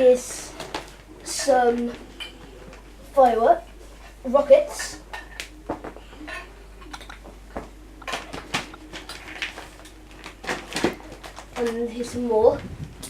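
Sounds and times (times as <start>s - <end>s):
boxes knocking and rustling: 7.2s - 13.0s.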